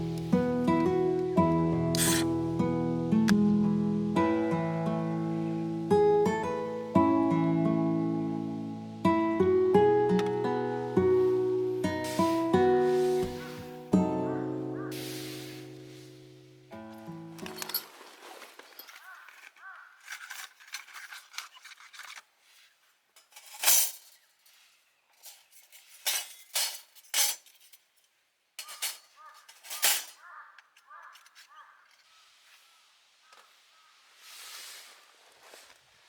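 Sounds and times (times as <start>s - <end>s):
metal gear clinking and knocking: 17.4s - 18.0s.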